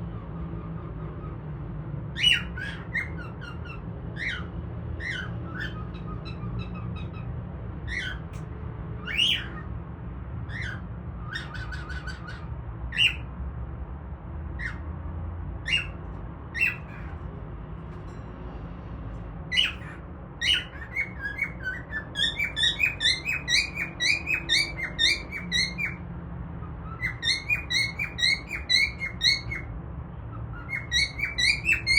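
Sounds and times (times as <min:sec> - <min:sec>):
cockatiel chirping: 0:02.2 - 0:07.3, 0:07.9 - 0:08.4, 0:09.0 - 0:09.7, 0:10.5 - 0:13.3, 0:15.6 - 0:16.0, 0:16.6 - 0:17.2, 0:19.5 - 0:26.0, 0:26.8 - 0:29.7, 0:30.4 - 0:31.9.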